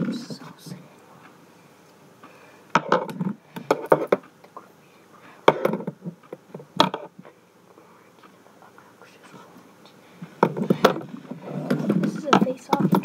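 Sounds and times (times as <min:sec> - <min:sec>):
hard objects knocking and clattering: 0:02.7 - 0:04.2, 0:05.4 - 0:07.2, 0:10.3 - 0:13.0.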